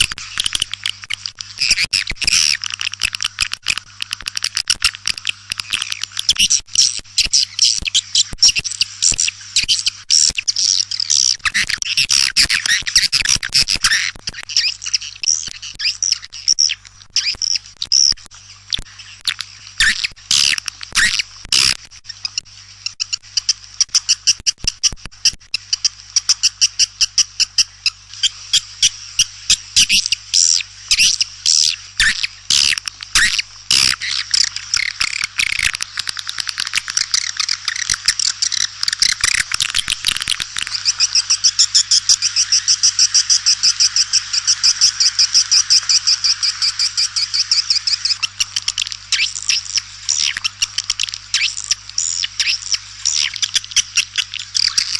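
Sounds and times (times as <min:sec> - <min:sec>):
swiftlet calls: 0:25.7 - 0:54.9.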